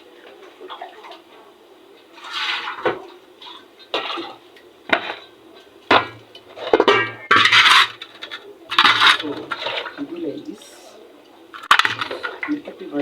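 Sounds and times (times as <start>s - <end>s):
water splashing into pot: 2.2s - 10.6s, 11.5s - 13.0s
meat and utensils knocking pot: 3.8s - 10.1s, 11.6s - 13.0s.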